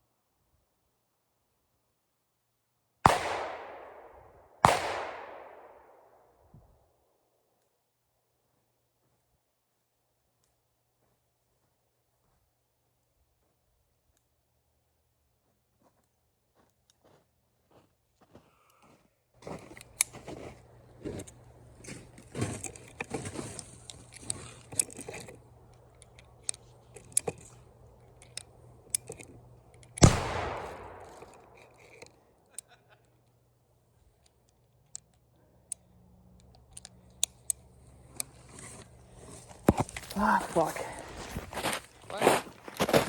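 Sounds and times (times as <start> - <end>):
gunshot with echo: 3.1 - 5.8, 30.0 - 31.0
gun handling clicks and rattles: 19.6 - 33.4, 34.0 - 40.2.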